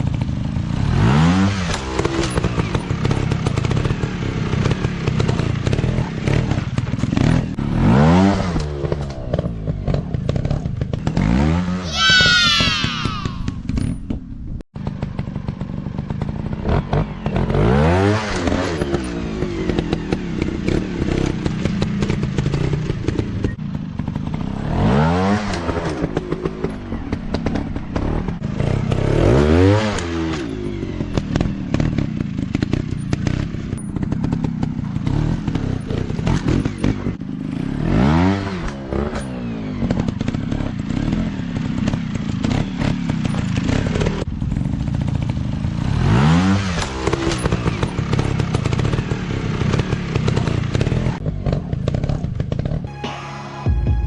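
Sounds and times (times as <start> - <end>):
dirt bike engine revving: 6.2 - 13.6, 31.1 - 43.0.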